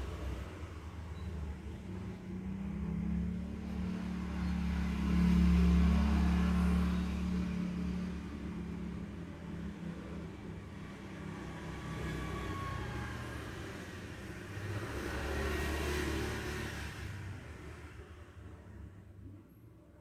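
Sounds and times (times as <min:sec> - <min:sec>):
vehicle passing by: 0:02.3 - 0:18.0.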